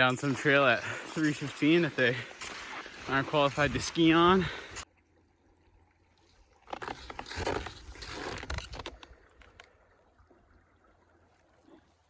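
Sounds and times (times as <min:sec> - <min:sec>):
skis scraping over snow: 0:00.0 - 0:04.8.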